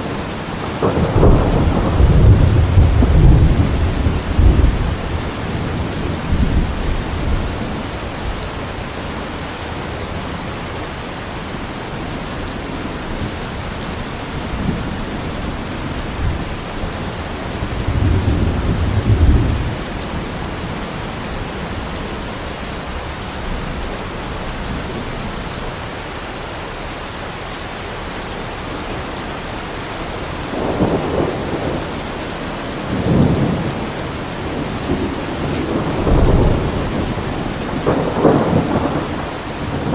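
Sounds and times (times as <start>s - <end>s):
heavy rain: 0.0s - 39.9s
distant thunder rumbling: 0.7s - 8.8s, 13.1s - 25.7s, 30.0s - 39.9s.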